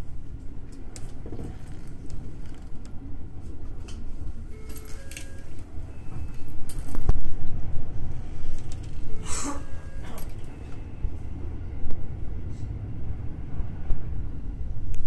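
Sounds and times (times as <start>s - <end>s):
electric train rumbling on rails: 0.0s - 15.0s
clinks and rattles: 9.8s - 10.6s.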